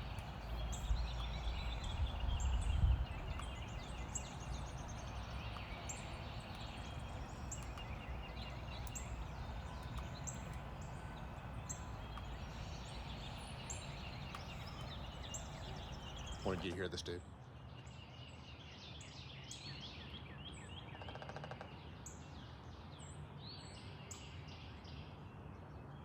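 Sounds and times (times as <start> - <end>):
low background rumble: 0.0 - 16.7
songbirds chirping and whistling: 0.0 - 16.8.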